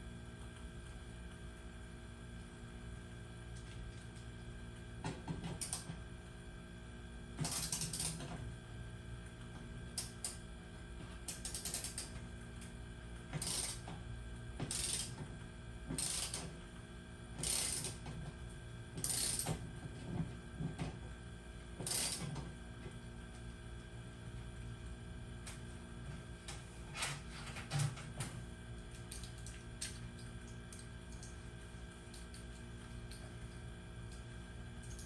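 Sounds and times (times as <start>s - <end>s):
steady hum: 0.0s - 35.0s
ratchet clicking: 7.4s - 8.2s, 11.3s - 12.1s, 13.4s - 13.8s, 14.7s - 15.2s, 16.0s - 16.4s, 17.4s - 18.0s, 19.0s - 19.5s, 21.9s - 22.2s.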